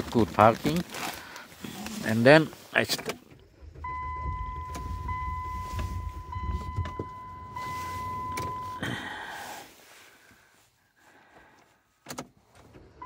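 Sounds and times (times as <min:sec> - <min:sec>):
car electronic chime: 0:03.8 - 0:08.8.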